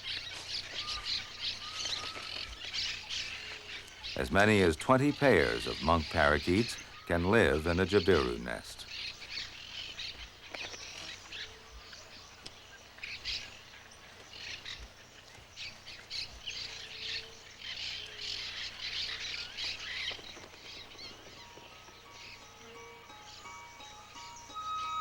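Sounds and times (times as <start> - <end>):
parakeets squawking and chattering: 0.7 - 9.5
soft music: 4.2 - 8.8, 21.4 - 25.0.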